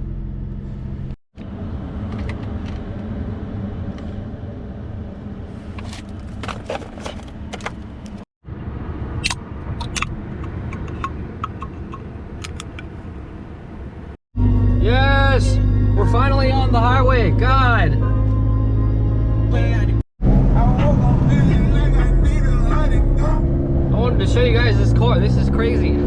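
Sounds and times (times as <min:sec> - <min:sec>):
truck cab rumble: 0:09.2 - 0:14.1.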